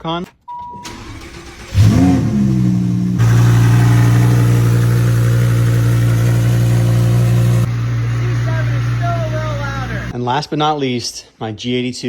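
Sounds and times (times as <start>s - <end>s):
sports car engine starting and idling: 0.8s - 10.1s.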